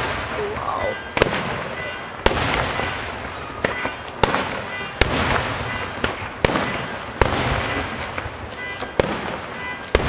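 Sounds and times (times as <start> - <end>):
firework bangs: 0.0 - 10.0.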